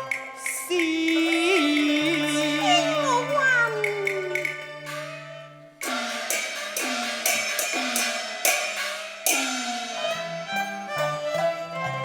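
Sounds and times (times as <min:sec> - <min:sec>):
gong and cymbal strikes: 0:05.8 - 0:10.7.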